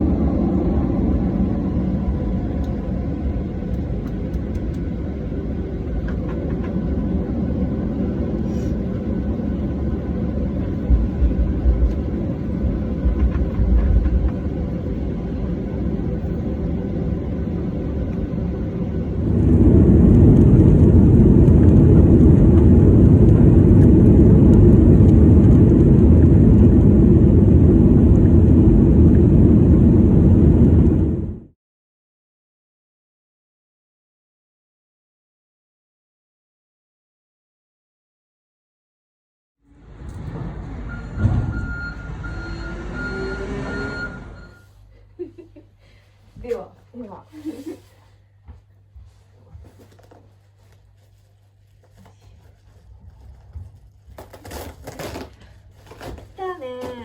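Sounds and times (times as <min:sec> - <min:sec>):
moving vehicle rumble: 0:00.0 - 0:31.5, 0:39.7 - 0:48.1.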